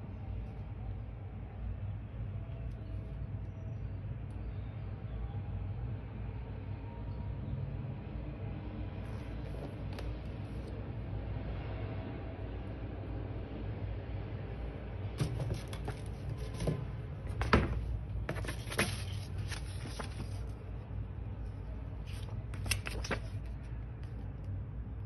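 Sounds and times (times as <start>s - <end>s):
packaging rustling: 15.2s - 20.6s.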